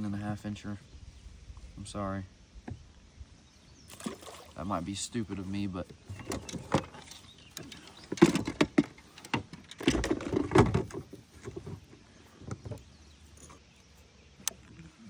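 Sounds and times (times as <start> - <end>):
gear knocking against kayak hull: 6.1 - 12.9.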